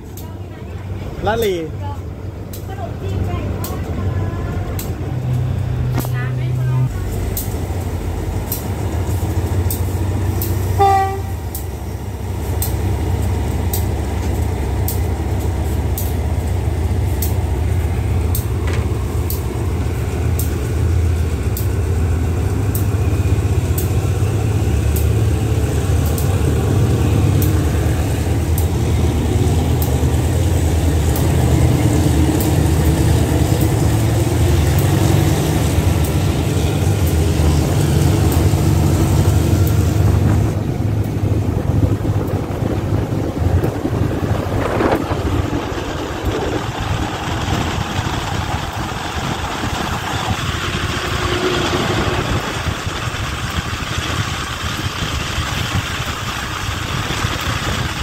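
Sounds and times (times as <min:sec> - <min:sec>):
diesel train rumbling: 0:00.0 - 0:58.0
wheels clicking on rail joints: 0:00.0 - 0:58.0
train horn toot: 0:10.7 - 0:11.5.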